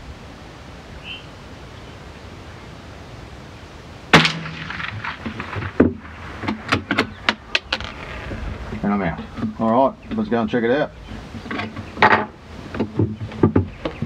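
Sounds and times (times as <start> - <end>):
light wind: 0.0 - 14.0
rifle shot: 4.1 - 7.1.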